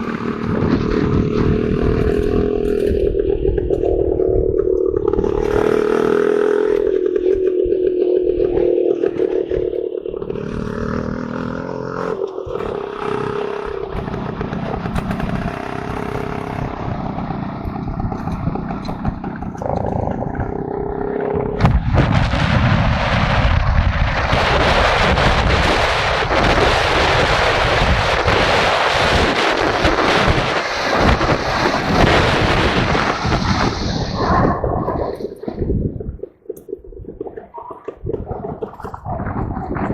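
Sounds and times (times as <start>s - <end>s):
rattly mechanical noise: 0.0s - 22.5s
motorcycle engine running: 0.0s - 36.8s
wind buffeting microphone: 0.0s - 39.9s.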